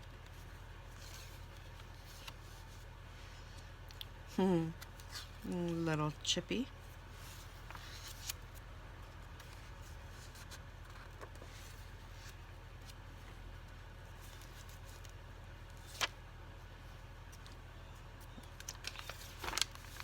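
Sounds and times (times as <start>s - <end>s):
steady low hum: 0.0s - 20.0s
paper rustling: 0.2s - 2.9s, 7.1s - 16.2s, 18.3s - 20.0s.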